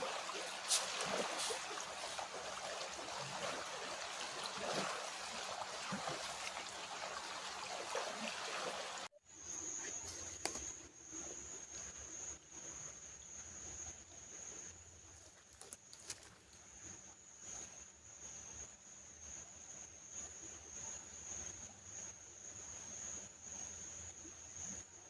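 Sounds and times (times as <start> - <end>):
creek water trickling over rocks: 0.0 - 9.1, 15.0 - 17.0.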